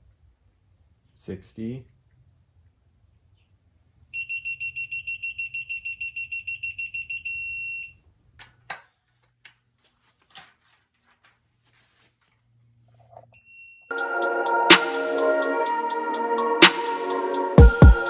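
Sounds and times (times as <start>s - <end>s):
torque wrench beeping: 4.2s - 8.0s.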